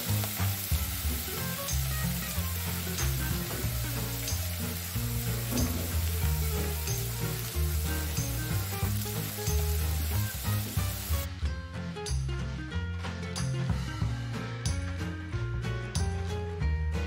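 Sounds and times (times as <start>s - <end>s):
onions sizzling in a wok: 0.0s - 11.3s.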